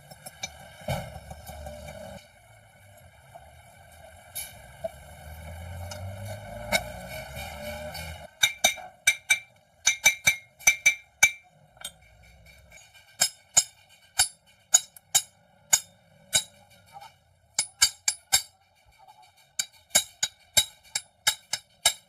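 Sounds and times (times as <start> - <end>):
hammer striking steel: 6.6 - 22.0.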